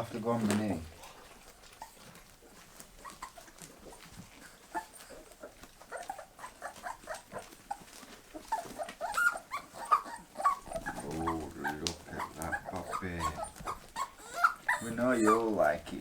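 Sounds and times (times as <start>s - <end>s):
puppies whimpering: 1.2s - 16.0s.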